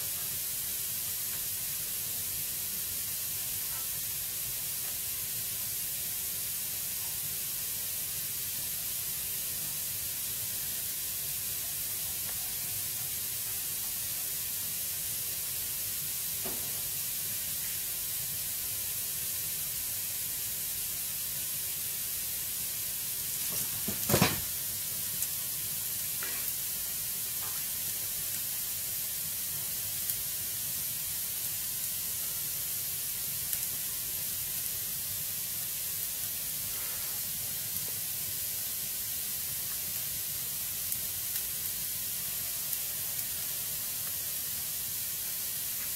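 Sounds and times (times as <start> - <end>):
firewood burning with crackles: 0.0 - 45.9.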